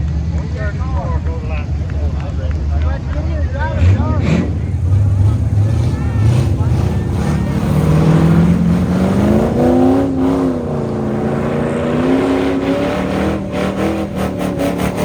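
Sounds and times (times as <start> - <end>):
race car engine revving: 3.7 - 15.0.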